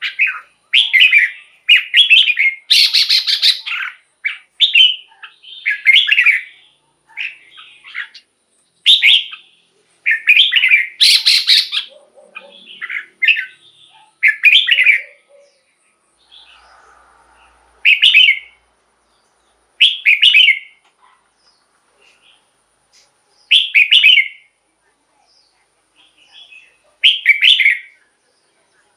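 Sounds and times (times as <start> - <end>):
bird warbling song: 0.0 - 24.5, 25.3 - 28.6.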